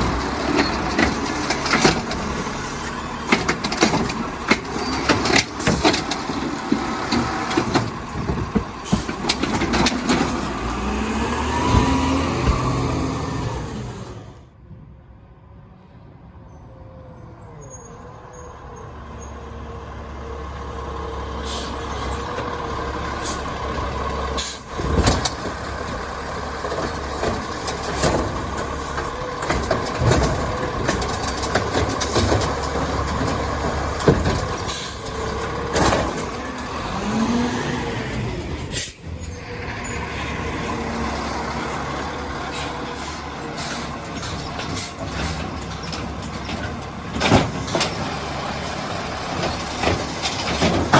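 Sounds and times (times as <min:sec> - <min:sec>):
clanks and knocks: 0:00.0 - 0:02.5, 0:03.2 - 0:11.0, 0:24.7 - 0:36.9, 0:43.5 - 0:50.9
air brake hisses: 0:21.4 - 0:22.1, 0:38.7 - 0:39.1.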